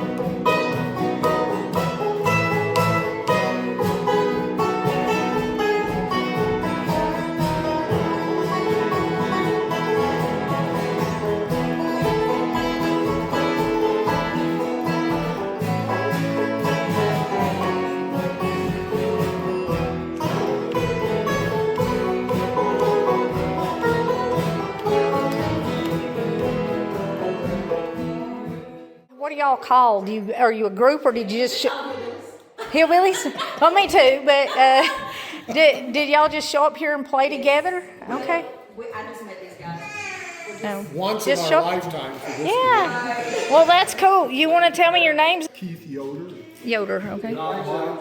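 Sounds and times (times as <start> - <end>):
acoustic string band playing: 0.0 - 29.1, 40.6 - 45.5.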